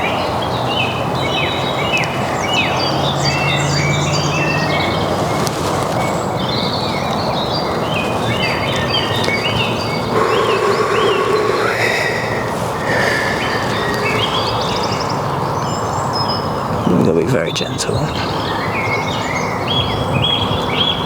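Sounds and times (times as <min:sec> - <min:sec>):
birds chirping and whistling: 0:00.0 - 0:17.0
steady hiss: 0:08.2 - 0:15.4.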